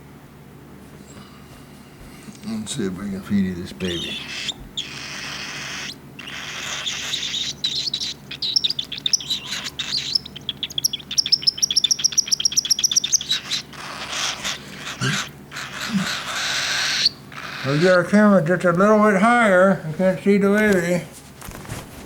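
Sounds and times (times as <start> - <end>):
bird chick begging calls: 3.7 - 18.3.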